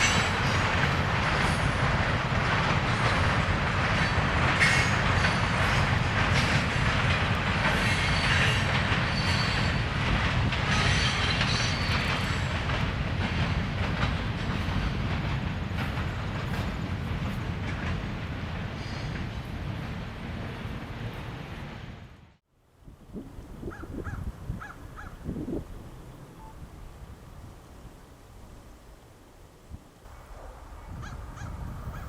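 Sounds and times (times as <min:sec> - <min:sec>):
train wheels rumbling and clacking: 0:00.0 - 0:22.2
high wheel squeals: 0:07.8 - 0:09.9, 0:10.7 - 0:12.5.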